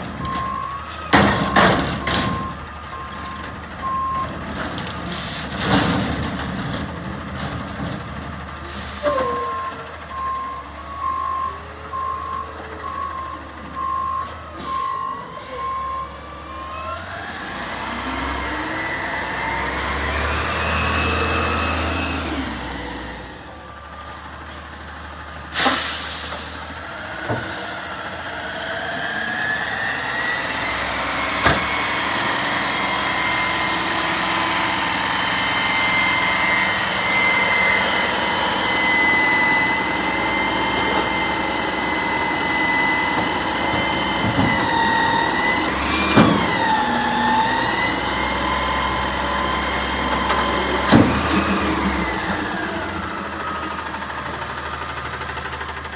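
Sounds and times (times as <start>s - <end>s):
truck engine whining: 0.0s - 55.9s
reversing beeper: 0.2s - 5.0s, 8.8s - 17.1s
air brake hiss: 8.7s - 9.4s, 25.4s - 26.8s.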